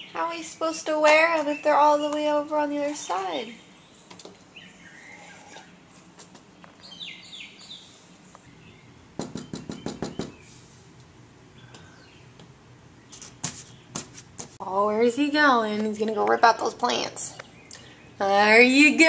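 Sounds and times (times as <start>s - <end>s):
faint bird chirps: 3.0s - 5.8s.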